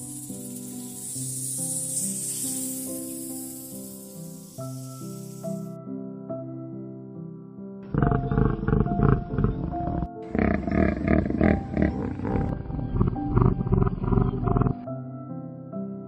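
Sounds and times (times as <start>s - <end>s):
background music: 0.0s - 16.0s
large animal rough calls: 7.9s - 14.8s.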